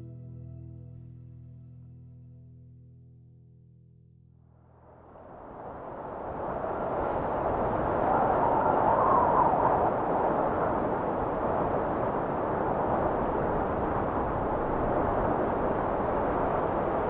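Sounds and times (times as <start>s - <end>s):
wind blowing: 5.0s - 17.0s.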